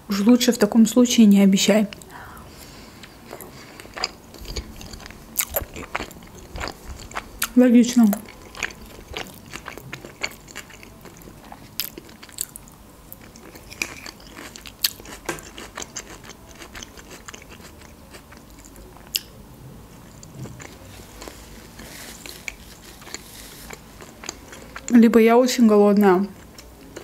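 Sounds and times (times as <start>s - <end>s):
person chewing food: 2.6s - 19.3s, 20.0s - 24.9s, 26.3s - 27.0s.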